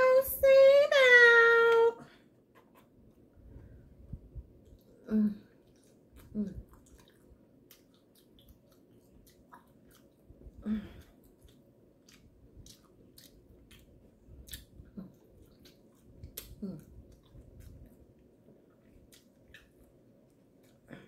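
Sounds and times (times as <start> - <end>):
person chewing with lip smacks: 4.6 - 20.9.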